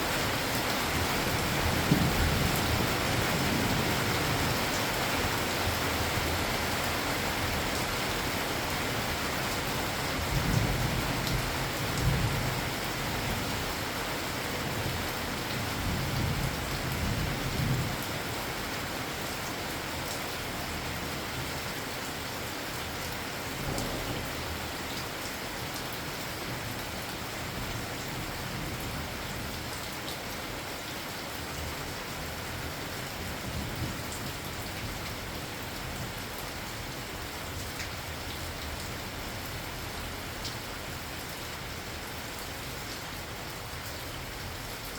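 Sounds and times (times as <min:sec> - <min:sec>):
steady rain: 0:00.0 - 0:44.9.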